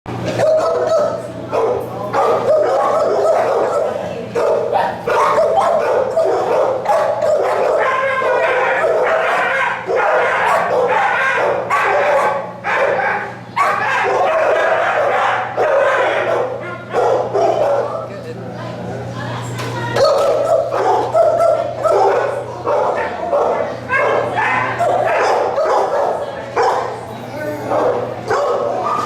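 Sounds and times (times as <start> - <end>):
steady low hum: 0.1 - 29.0
dogs barking and yipping: 0.2 - 18.1, 20.0 - 29.0.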